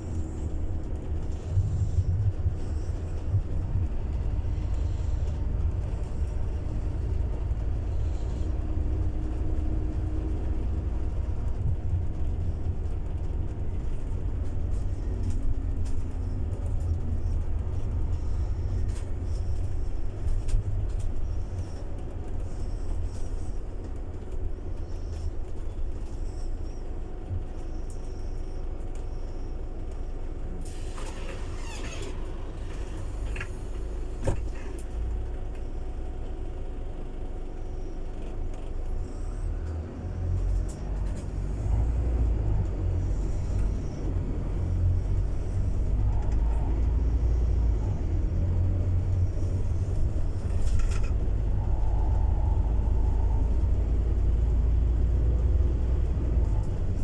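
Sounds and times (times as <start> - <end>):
bus engine rumble: 0.0 - 57.0
air brake hissing: 30.6 - 34.7.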